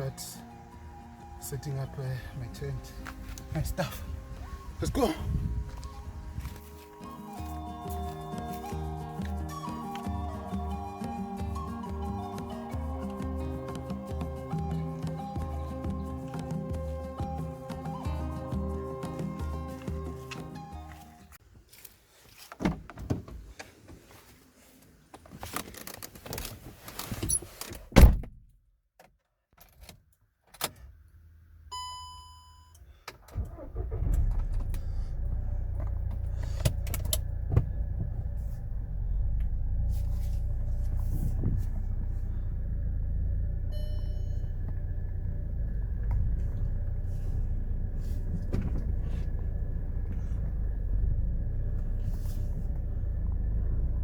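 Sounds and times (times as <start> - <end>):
car engine running: 0.0 - 21.4, 33.5 - 54.0
short electronic beep: 31.7 - 32.8, 43.7 - 44.6.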